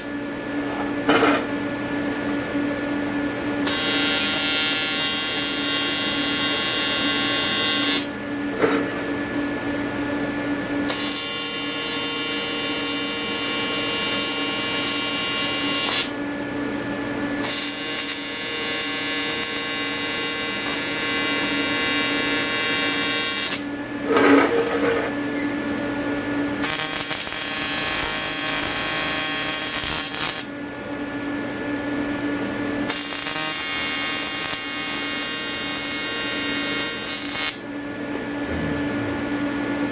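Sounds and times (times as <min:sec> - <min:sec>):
welding arc buzzing: 0:03.6 - 0:08.2, 0:10.9 - 0:16.2, 0:17.4 - 0:23.7, 0:26.6 - 0:30.5, 0:32.8 - 0:37.6.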